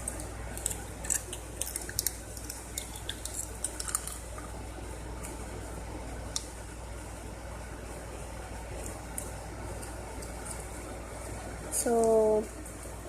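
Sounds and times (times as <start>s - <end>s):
tinfoil crinkling: 0.0s - 4.5s
steady low hum: 0.0s - 13.0s.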